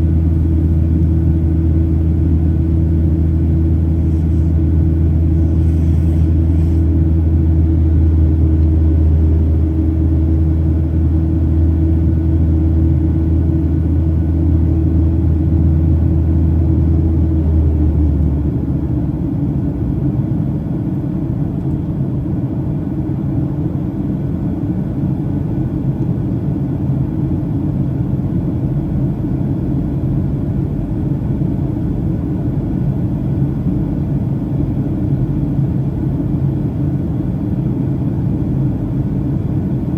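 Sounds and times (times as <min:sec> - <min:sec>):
jet engines and airflow rumble: 0:00.0 - 0:39.9
strong low hum: 0:00.0 - 0:39.9.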